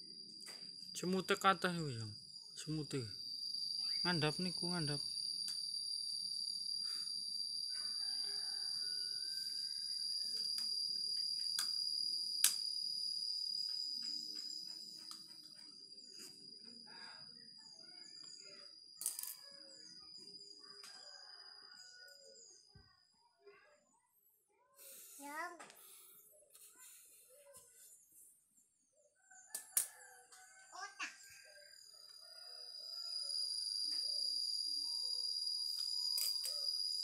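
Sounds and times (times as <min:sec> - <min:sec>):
insects shrilling: 0:00.1 - 0:21.5, 0:31.0 - 0:37.0
rooster crowing: 0:07.7 - 0:10.1, 0:20.6 - 0:22.5, 0:29.3 - 0:31.0, 0:31.7 - 0:33.6.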